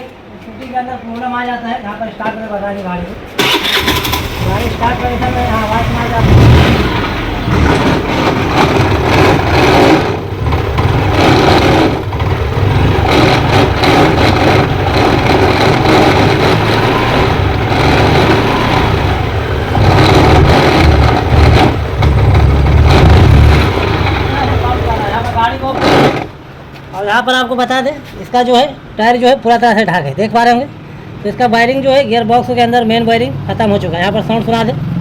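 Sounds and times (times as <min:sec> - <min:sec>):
gearbox noise: 0:03.4 - 0:26.4
scooter engine revving: 0:03.4 - 0:26.4.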